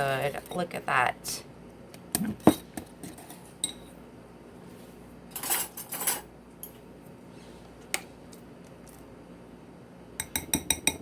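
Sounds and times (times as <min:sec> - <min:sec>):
utensil clinking against bowl: 0:10.2 - 0:11.0.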